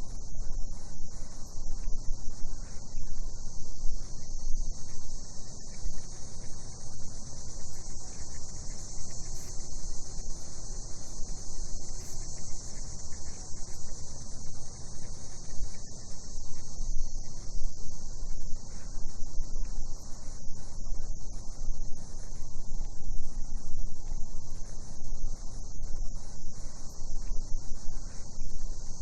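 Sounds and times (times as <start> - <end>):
cicadas buzzing: 3.5 - 17.8.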